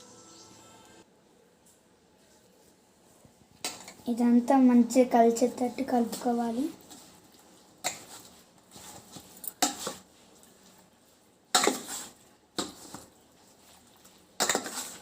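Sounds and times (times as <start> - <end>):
spoon scraping bowl: 11.5 - 15.0.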